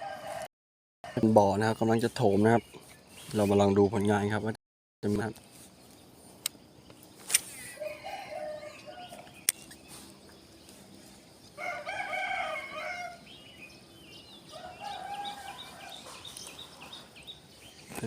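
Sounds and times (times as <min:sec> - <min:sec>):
roosters crowing: 0:00.0 - 0:00.5, 0:07.6 - 0:10.0, 0:11.3 - 0:17.6
sharp click: 0:07.2 - 0:07.5, 0:09.4 - 0:09.8.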